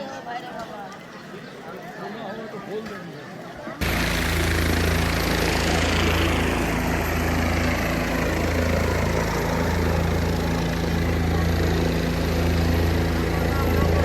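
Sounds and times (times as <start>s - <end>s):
helicopter rotor and turbine: 3.8s - 14.0s.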